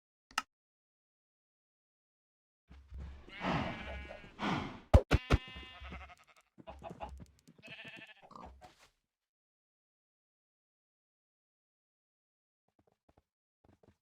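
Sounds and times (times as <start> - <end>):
animal bleating: 3.2 - 8.5.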